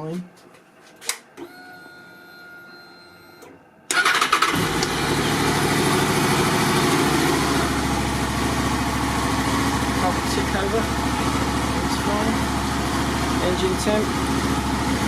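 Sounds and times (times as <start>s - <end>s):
motorcycle engine idling: 4.1s - 15.0s.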